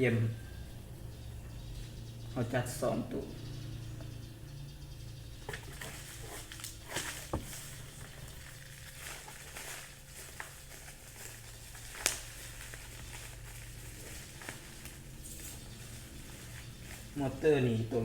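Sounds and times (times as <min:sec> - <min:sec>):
packaging crinkling: 0:05.5 - 0:17.4.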